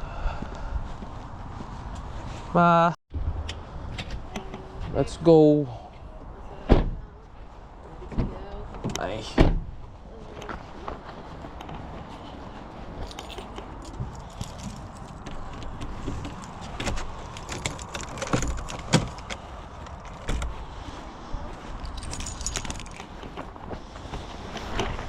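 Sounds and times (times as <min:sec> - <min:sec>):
metallic jangles and rattles: 0:12.1 - 0:20.3, 0:21.8 - 0:23.5.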